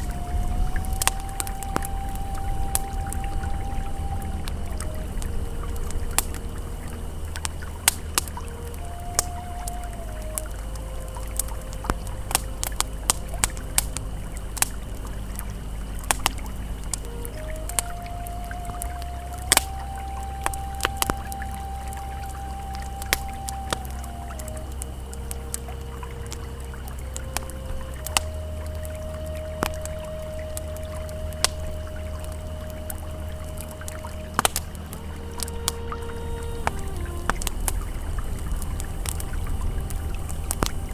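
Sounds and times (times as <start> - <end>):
campfire crackling and popping: 0.0 - 40.9
river flowing: 0.0 - 40.9
soft held ambient tone: 0.0 - 40.9
sharp fire pops: 7.3 - 9.4, 11.4 - 17.0, 33.6 - 35.8.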